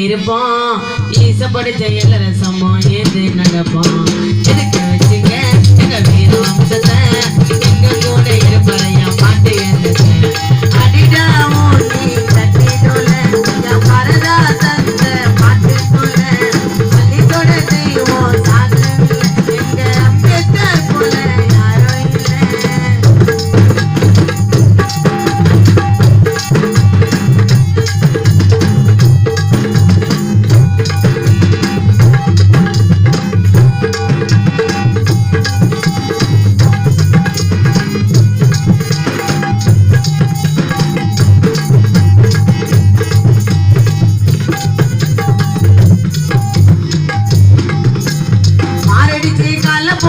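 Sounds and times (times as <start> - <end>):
fast drumming with rattling percussion: 1.0 - 50.0.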